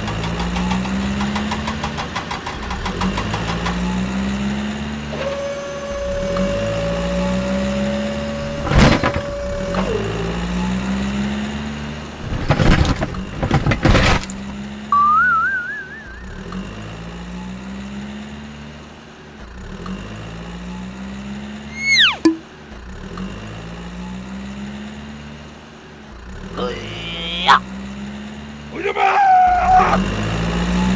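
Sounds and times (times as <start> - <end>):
cartoon falling whistle: 14.9 - 16.4, 21.7 - 22.4
warbling rising whistle: 14.9 - 16.5, 21.7 - 22.4
low rising hum: 14.9 - 17.3.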